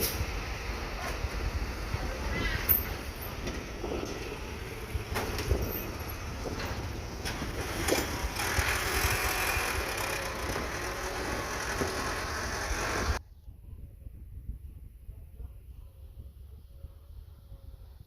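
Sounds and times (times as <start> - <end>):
truck engine rumble: 0.0 - 13.2.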